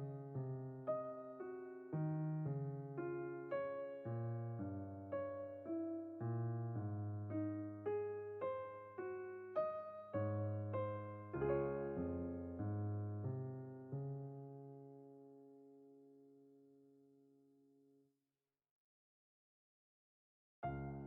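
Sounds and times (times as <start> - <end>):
slow electric piano melody: 0.0 - 16.4, 20.6 - 21.0.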